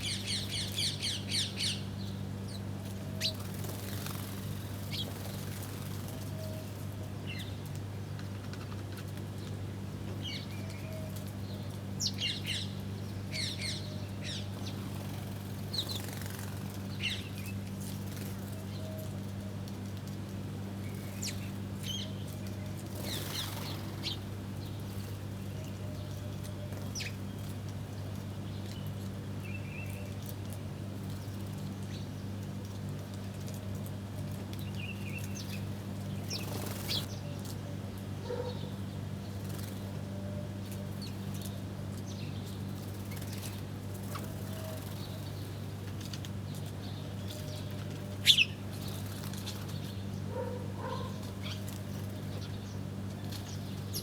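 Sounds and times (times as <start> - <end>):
small birds chirping: 0.0 - 7.6, 10.2 - 19.2, 20.8 - 30.4, 34.5 - 40.0, 40.6 - 54.0
wings fluttering: 3.2 - 6.3, 14.6 - 16.9, 22.8 - 24.4, 35.4 - 37.1, 42.7 - 45.4.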